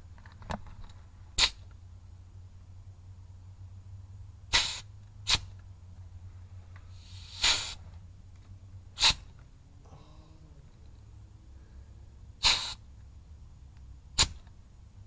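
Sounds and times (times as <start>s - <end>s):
pneumatic grease gun air bursts: 1.4s - 1.6s, 4.5s - 5.5s, 6.9s - 7.8s, 9.0s - 9.2s, 12.4s - 12.8s, 14.2s - 14.4s.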